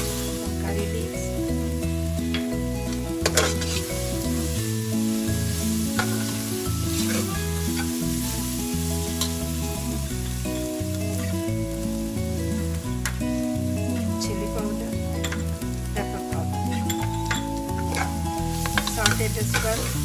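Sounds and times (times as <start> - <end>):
food sizzling in hot oil: 0.0 - 20.0
ladle scraping and knocking pot: 3.2 - 4.0, 16.7 - 19.9.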